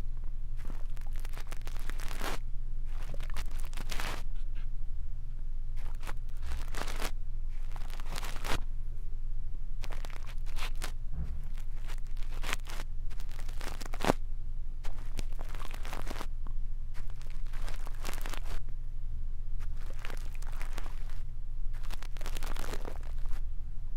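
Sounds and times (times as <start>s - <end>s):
steady low hum: 0.0s - 23.9s
brush bristles scratching microphone: 0.6s - 4.7s, 9.9s - 14.2s, 19.6s - 23.4s.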